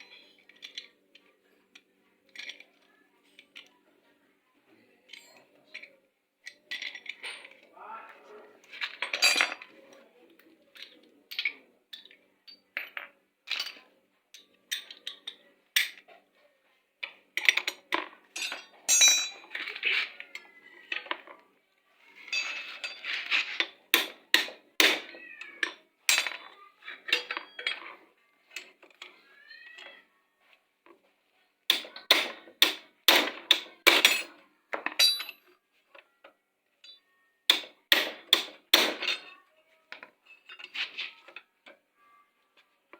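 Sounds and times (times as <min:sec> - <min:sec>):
metal tools clinking: 0:05.1 - 0:07.7, 0:08.6 - 0:09.8, 0:17.4 - 0:21.3, 0:22.1 - 0:29.2, 0:33.3 - 0:35.6, 0:38.0 - 0:41.4.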